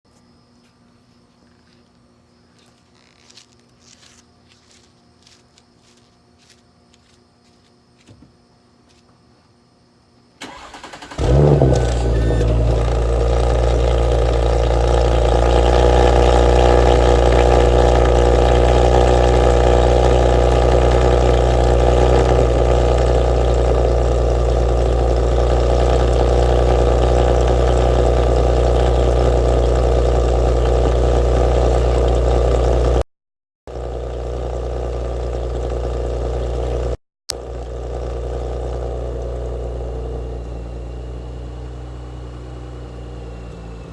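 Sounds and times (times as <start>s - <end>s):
car engine starting and idling: 10.4s - 33.0s, 33.7s - 43.9s.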